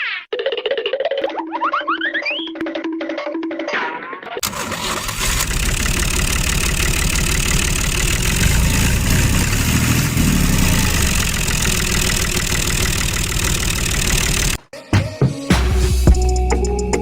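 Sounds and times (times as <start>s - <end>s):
tractor engine idling: 4.4s - 14.6s.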